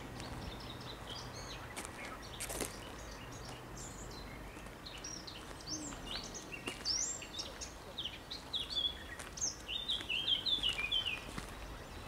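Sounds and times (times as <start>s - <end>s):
birds chirping and singing: 0.0s - 12.0s.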